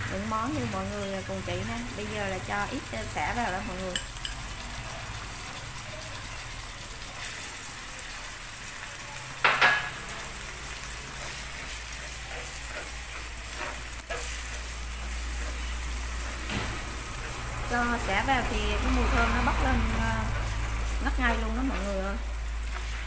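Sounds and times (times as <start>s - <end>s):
food sizzling in frying pan: 0.0s - 23.0s
spatula scraping pan: 9.6s - 23.0s.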